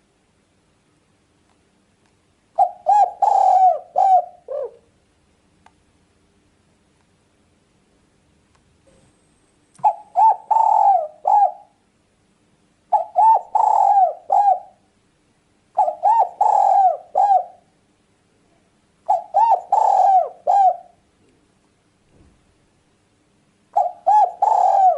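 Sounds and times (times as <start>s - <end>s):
dove cooing: 2.6s - 4.9s, 9.8s - 11.8s, 12.9s - 14.9s, 15.8s - 17.7s, 19.1s - 21.0s, 23.7s - 24.9s.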